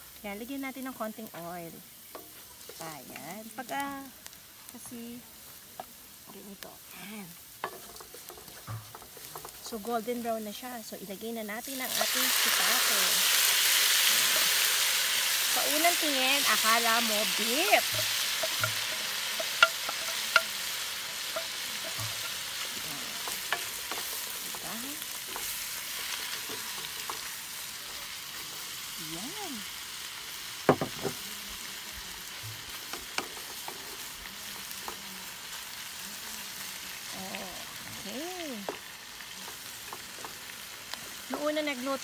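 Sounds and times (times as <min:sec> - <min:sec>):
mushrooms sizzling in oil: 0:00.0 - 0:42.0
wooden spoon clicking on pan: 0:16.0 - 0:27.6.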